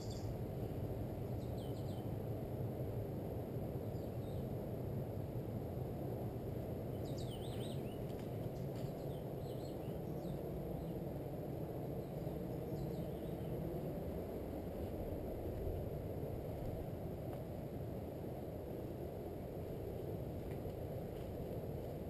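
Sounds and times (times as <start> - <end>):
small birds chirping: 0.0 - 0.3, 1.3 - 2.1, 6.9 - 11.0, 12.0 - 13.6
steady low rumble: 0.0 - 22.0.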